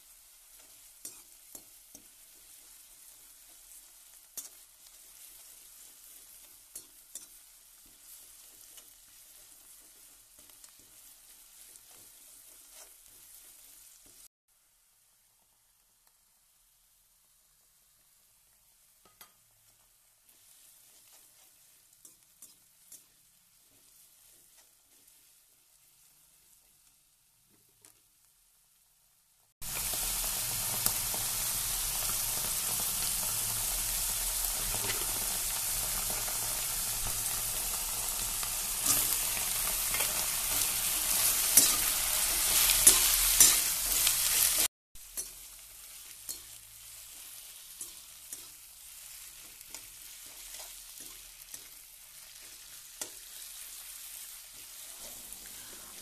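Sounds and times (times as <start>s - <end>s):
oil sizzling in a wok: 0.0s - 56.0s
metal spoon scraping a pan: 38.7s - 45.4s.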